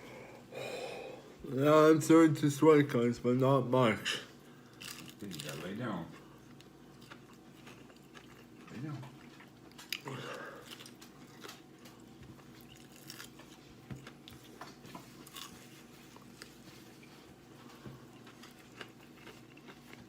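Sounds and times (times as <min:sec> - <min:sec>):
person chewing: 0:04.5 - 0:20.0.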